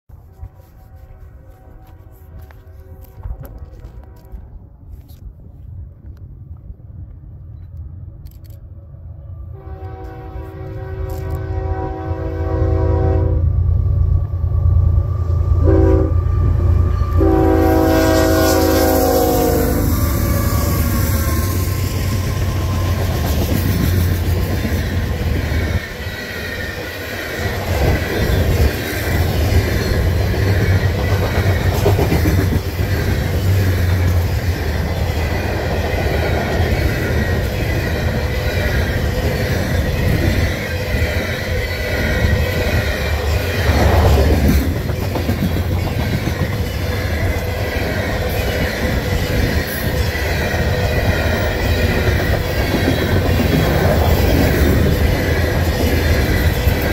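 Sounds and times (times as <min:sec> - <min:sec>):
steel wheels rattling on rail: 0:16.2 - 0:56.9.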